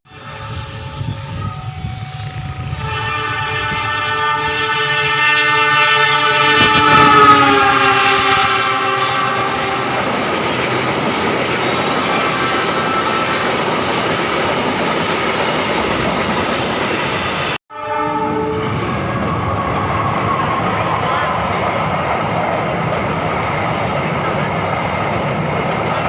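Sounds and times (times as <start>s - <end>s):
train horn: 0.1s - 13.5s, 17.7s - 21.3s
train cars running past: 0.1s - 26.0s.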